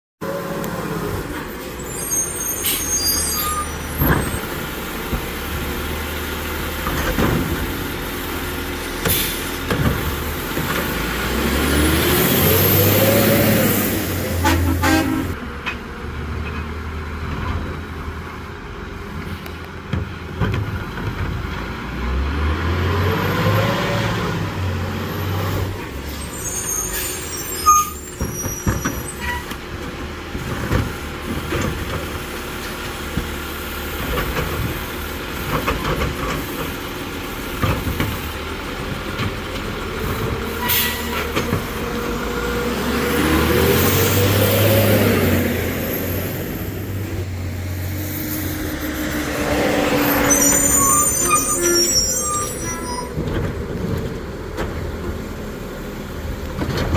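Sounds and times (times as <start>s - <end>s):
garbage truck engine revving: 0.2s - 18.2s, 20.5s - 56.9s
air brake hisses: 9.0s - 9.6s.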